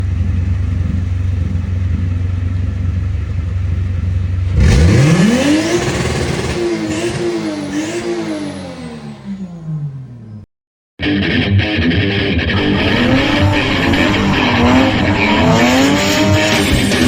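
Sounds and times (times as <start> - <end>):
car engine revving: 4.5 - 9.8, 12.4 - 17.0.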